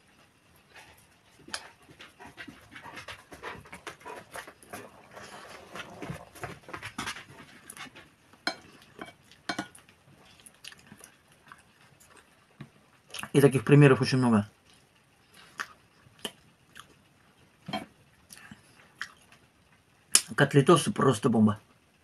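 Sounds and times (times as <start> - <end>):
mouth chewing and lip-smacking: 0.8 - 5.0, 5.9 - 12.3, 13.1 - 13.4, 14.7 - 17.0, 18.3 - 19.4.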